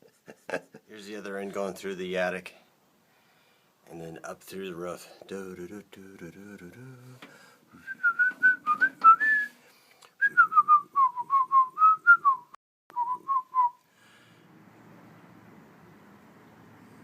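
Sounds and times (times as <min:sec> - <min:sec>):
man whistling a tune: 0:07.8 - 0:09.6, 0:10.2 - 0:13.8.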